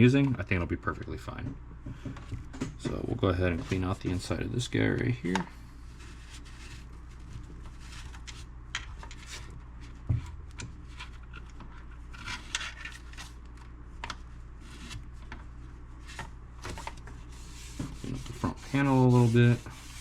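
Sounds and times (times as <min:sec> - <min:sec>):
steady low hum: 0:00.0 - 0:20.0
rubbing and light scraping: 0:02.8 - 0:10.1, 0:14.6 - 0:20.0.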